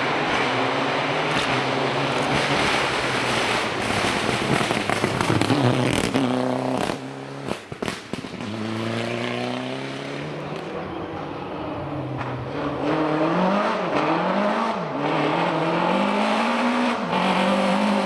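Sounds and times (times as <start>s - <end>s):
exhaust pops and bangs: 0.0s - 8.9s
rally car engine driven hard: 0.0s - 18.0s
tyre and road noise: 0.0s - 18.0s.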